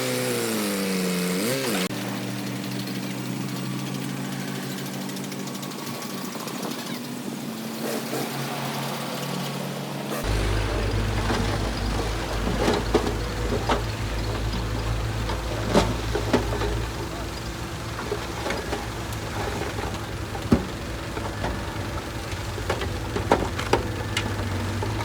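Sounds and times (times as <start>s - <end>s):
heavy diesel engine running: 9.8s - 25.0s.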